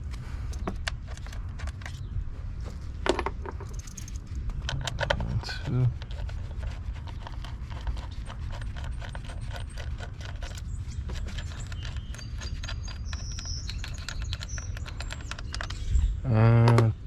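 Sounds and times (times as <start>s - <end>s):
ratchet wrench clicking: 3.6s - 4.2s.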